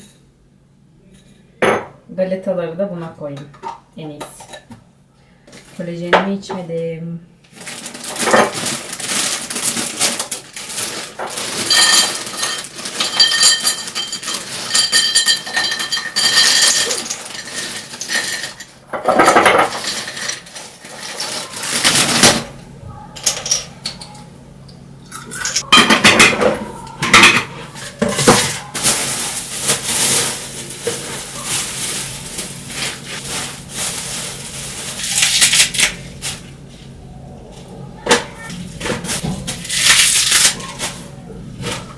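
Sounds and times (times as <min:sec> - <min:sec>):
dishes and cutlery clattering: 0:11.2 - 0:22.4, 0:25.1 - 0:29.0.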